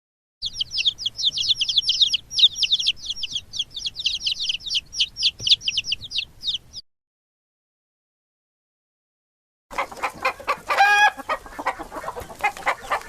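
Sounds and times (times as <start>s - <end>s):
birds chirping: 0.4s - 6.8s, 9.7s - 13.0s.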